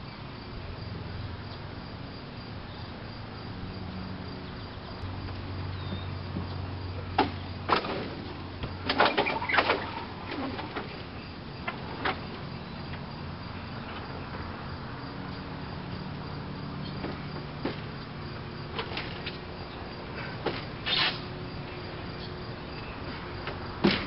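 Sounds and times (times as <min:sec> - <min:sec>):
sharp knocks: 0:23.4 - 0:24.0.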